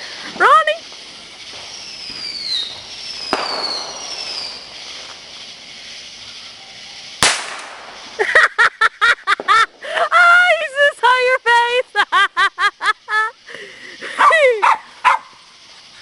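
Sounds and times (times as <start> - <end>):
falling hissing whistle: 0.0 - 10.0
sharp firework pop: 2.1 - 4.5, 7.2 - 8.1.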